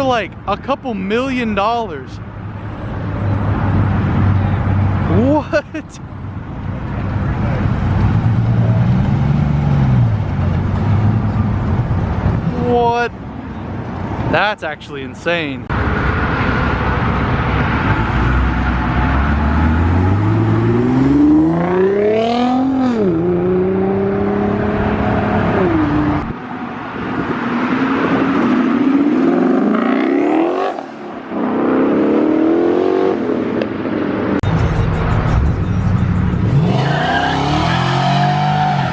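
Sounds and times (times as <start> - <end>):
car engine revving: 6.8 - 12.8, 15.7 - 26.4, 34.4 - 38.9.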